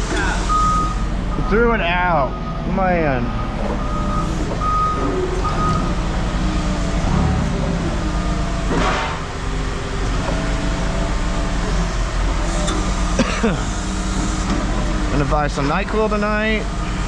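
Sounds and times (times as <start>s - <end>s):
heavy vehicle engine rumbling: 0.0s - 17.0s
reversing alarm beeps: 0.4s - 8.8s, 9.6s - 13.0s.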